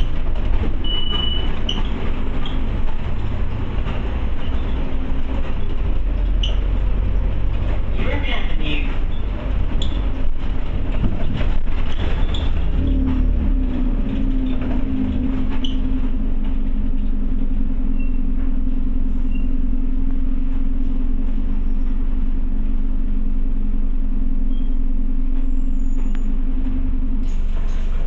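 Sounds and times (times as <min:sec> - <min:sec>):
bus diesel engine humming: 0:00.0 - 0:28.0.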